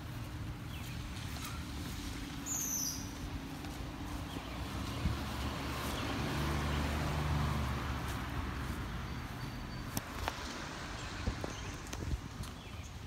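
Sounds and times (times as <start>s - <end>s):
vehicle engine hum passing: 0.0s - 13.0s.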